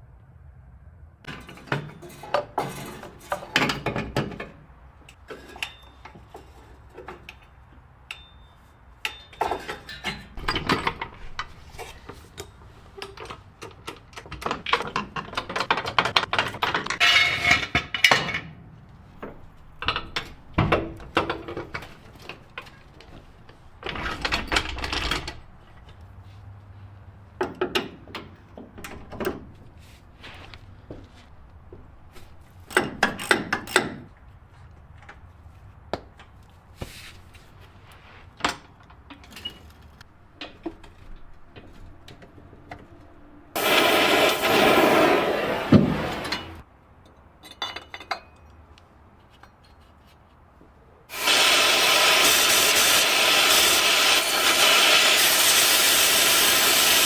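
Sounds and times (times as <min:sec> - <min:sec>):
hand tools clinking on metal: 0:01.3 - 0:18.5, 0:46.2 - 0:49.8
scraping on metal: 0:16.8 - 0:18.2.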